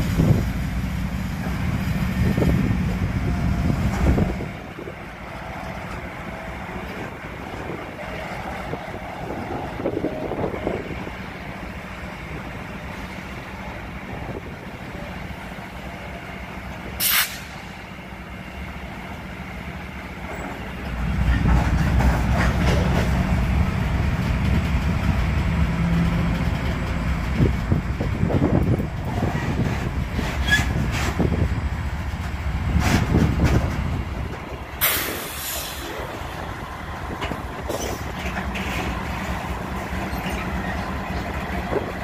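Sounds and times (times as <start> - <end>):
diesel locomotive rumble: 0.0 - 42.0
freight train rolling: 0.0 - 42.0
air hiss burst: 17.0 - 17.7, 34.8 - 36.0.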